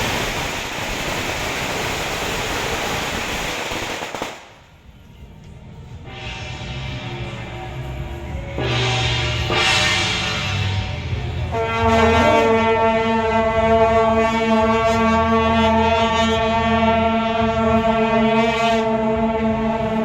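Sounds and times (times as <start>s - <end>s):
loud horn long steady note: 6.0s - 20.0s.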